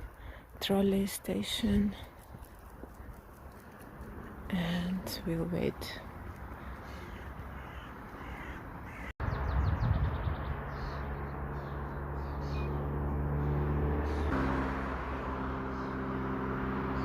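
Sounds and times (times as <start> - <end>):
low engine hum: 1.6 - 17.0
crows cawing: 6.5 - 9.2.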